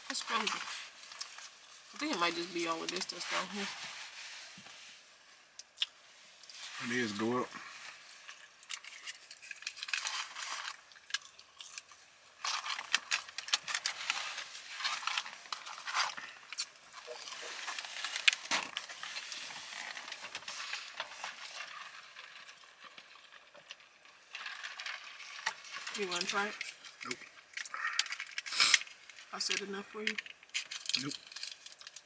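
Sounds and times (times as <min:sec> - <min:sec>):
paper wrappers crinkling: 0:06.5 - 0:32.0.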